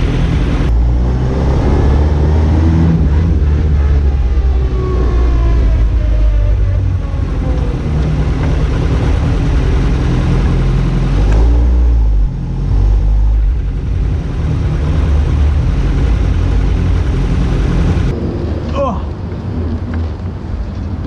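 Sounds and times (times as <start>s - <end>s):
sports car engine running hard: 0.0s - 0.8s, 6.8s - 18.2s.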